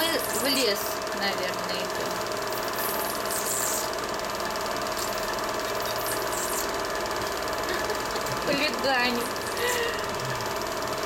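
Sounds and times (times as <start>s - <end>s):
film projector clatter: 0.0s - 11.0s
projector hum: 0.0s - 11.0s.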